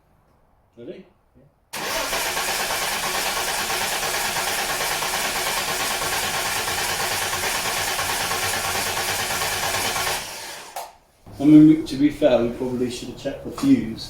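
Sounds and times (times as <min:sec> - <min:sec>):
starter motor cranking engine: 0:01.8 - 0:11.0.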